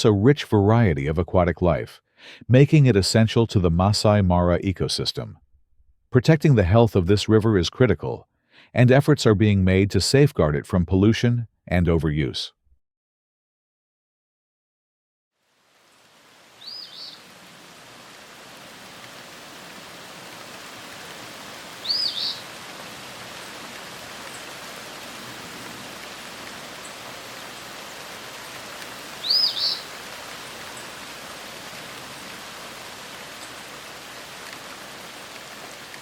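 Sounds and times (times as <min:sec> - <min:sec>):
rain hissing: 0:15.4 - 0:36.0
bird calling high notes: 0:21.8 - 0:22.4, 0:29.2 - 0:29.9.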